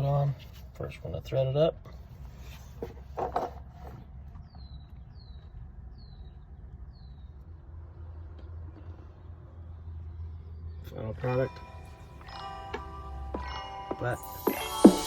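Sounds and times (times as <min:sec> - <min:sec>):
bird chirping: 0:04.4 - 0:07.5.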